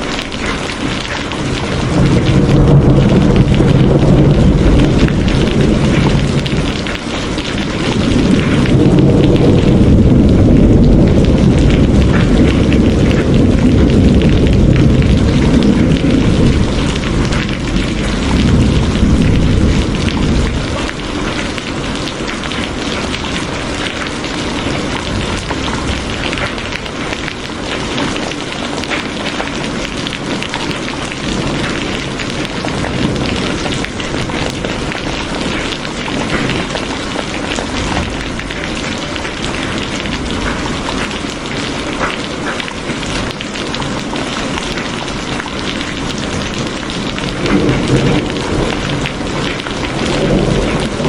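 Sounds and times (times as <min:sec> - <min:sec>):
heavy rain: 0:00.0 - 0:51.0
thunder rumbling: 0:00.0 - 0:51.0.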